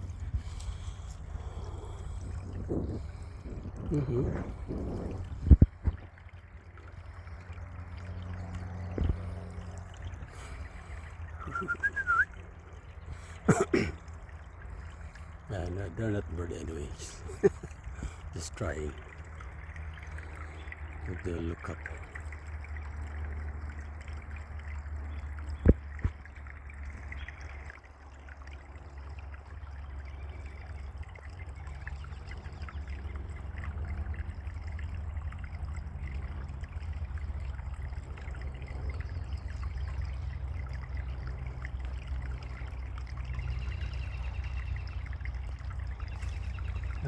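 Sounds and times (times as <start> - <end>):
low rumble: 0.0 - 6.4
trickling water: 0.0 - 47.0.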